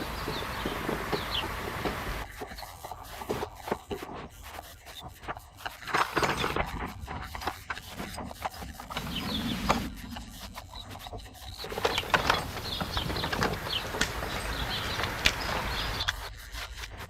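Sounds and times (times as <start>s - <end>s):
sharp knocks and clicks: 0.0s - 2.6s, 11.6s - 16.2s
plastering tool scraping wall: 0.0s - 17.0s.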